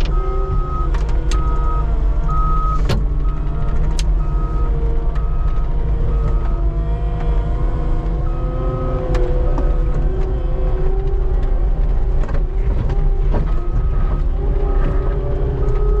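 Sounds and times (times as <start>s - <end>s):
skid steer engine running: 0.0s - 16.0s
backup alarm beeping: 0.1s - 3.5s.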